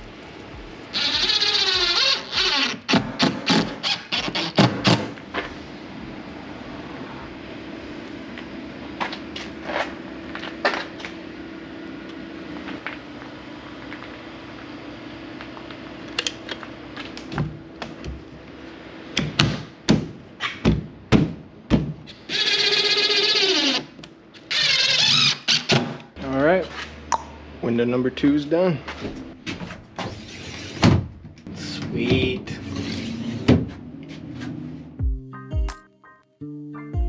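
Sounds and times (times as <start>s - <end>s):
steady low hum: 0.0s - 2.0s, 4.7s - 22.1s.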